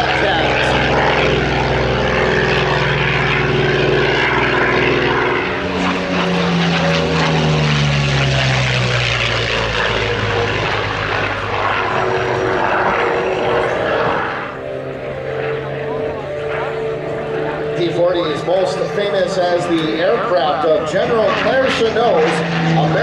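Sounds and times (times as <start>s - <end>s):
propeller plane flying past: 0.0s - 23.0s.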